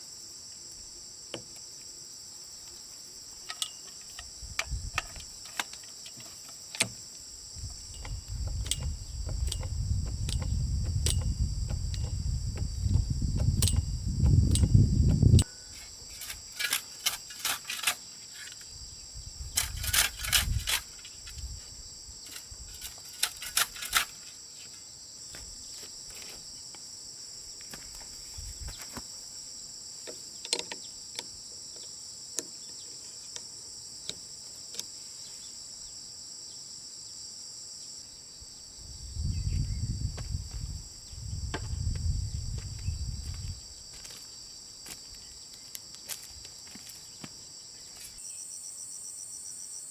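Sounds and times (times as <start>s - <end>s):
crickets chirring: 0.0s - 49.9s
sharp knocks and clicks: 8.0s - 15.4s.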